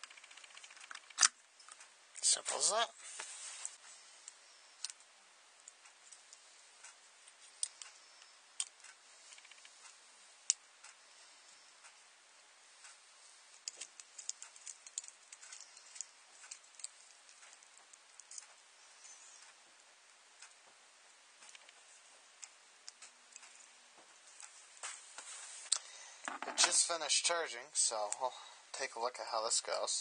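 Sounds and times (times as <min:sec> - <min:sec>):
low steady hiss: 0:00.0 - 0:30.0
small hard objects clicking: 0:13.6 - 0:18.6.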